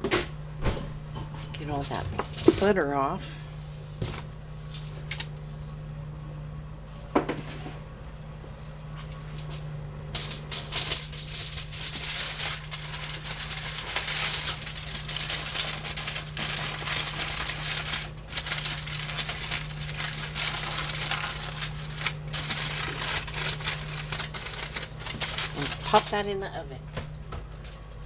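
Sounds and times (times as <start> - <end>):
aluminium foil crinkling: 1.6 - 2.8, 4.0 - 5.6, 9.0 - 28.0.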